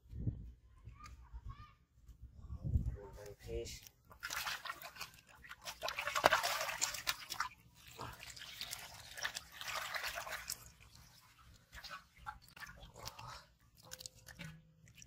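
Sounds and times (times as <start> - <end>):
water splashing and dripping: 3.8 - 15.0.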